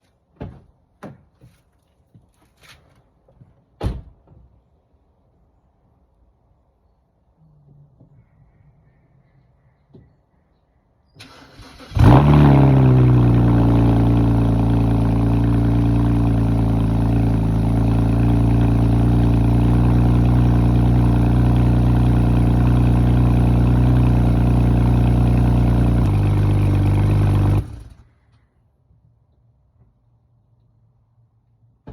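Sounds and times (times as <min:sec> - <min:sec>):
car engine idling: 0:11.8 - 0:28.1.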